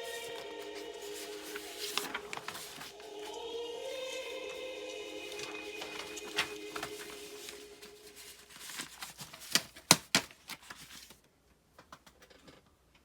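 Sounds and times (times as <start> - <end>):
background music: 0.0 - 8.8.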